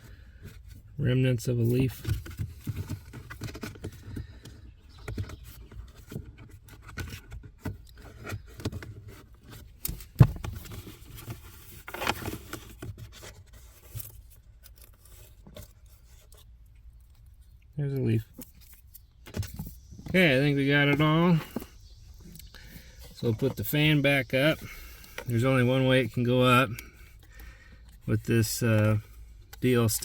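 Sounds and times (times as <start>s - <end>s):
hand rummaging in plastic housing: 1.8s - 17.5s.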